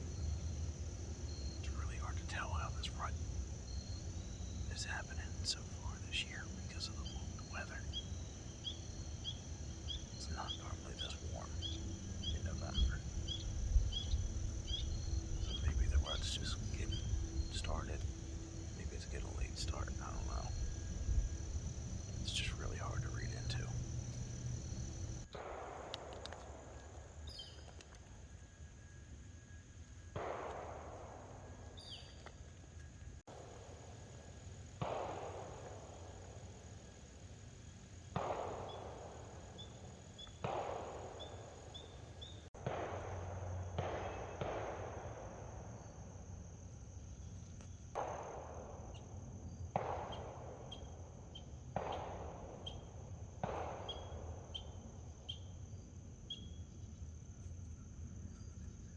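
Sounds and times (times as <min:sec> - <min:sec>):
insect trill: 0:00.0 - 0:58.9
distant echoing gunshots: 0:04.7 - 0:21.3, 0:22.0 - 0:27.7, 0:30.1 - 0:32.1, 0:34.8 - 0:36.6, 0:38.1 - 0:46.2, 0:47.9 - 0:55.1.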